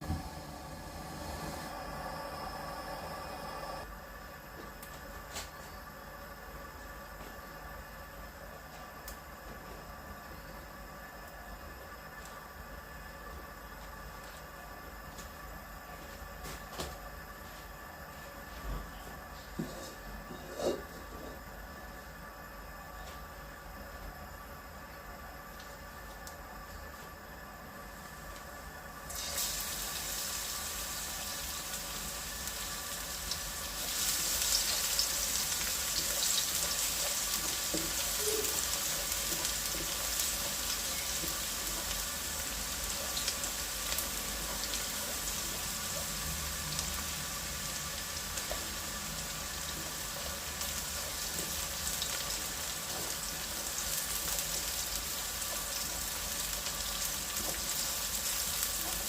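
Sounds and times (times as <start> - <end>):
food sizzling in hot oil: 29.0 - 59.0.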